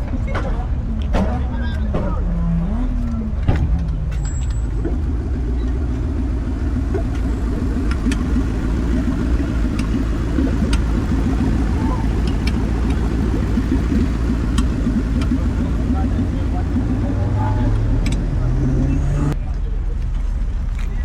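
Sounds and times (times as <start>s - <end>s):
people talking: 0.0s - 5.0s, 7.2s - 21.0s
car engine idling: 0.0s - 21.0s.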